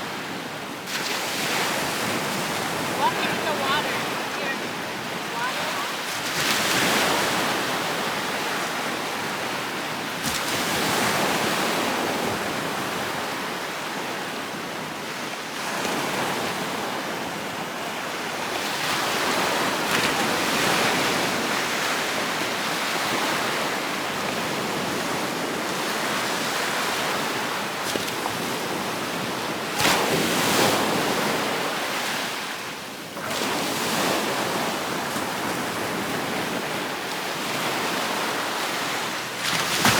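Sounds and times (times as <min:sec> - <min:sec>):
surf breaking on beach: 0:00.9 - 0:09.3, 0:18.0 - 0:32.6, 0:33.2 - 0:39.9.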